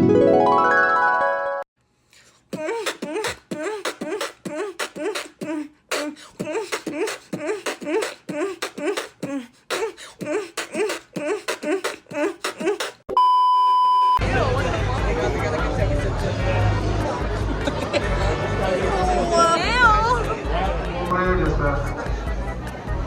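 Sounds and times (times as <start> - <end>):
person making rhythmic vocal sounds: 2.1 - 13.0.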